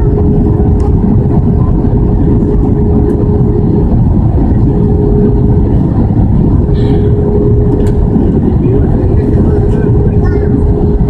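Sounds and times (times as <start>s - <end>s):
airplane cabin engine and airflow noise: 0.0s - 11.0s
steady hum: 0.0s - 11.0s.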